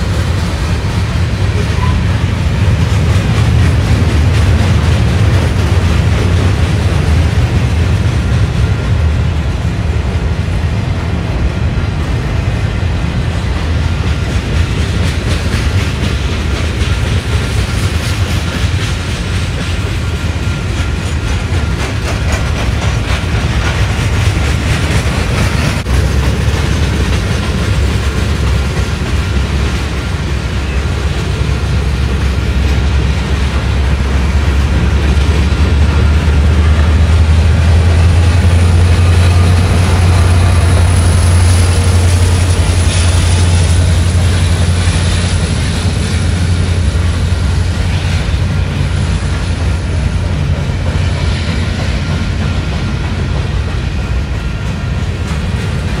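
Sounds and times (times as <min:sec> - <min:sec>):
diesel locomotive engine rumble: 0:00.0 - 0:56.0
train wheels clattering over rails: 0:00.0 - 0:56.0.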